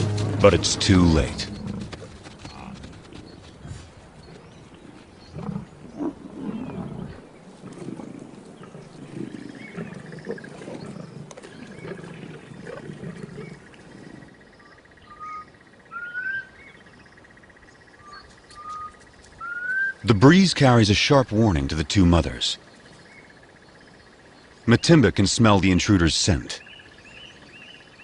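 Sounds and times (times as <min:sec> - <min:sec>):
lions growling: 0:00.0 - 0:15.3
rising bird whistles: 0:18.6 - 0:20.0.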